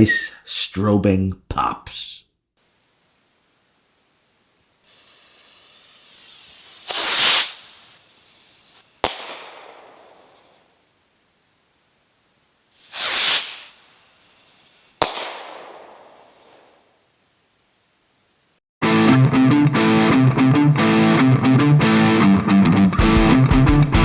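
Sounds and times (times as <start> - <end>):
fuse hiss: 2.6 - 18.6
rocket whoosh at lift-off: 4.9 - 10.7, 12.8 - 16.8
sharp firework pop: 6.2 - 8.0, 8.7 - 10.7, 12.8 - 13.9, 15.0 - 16.8.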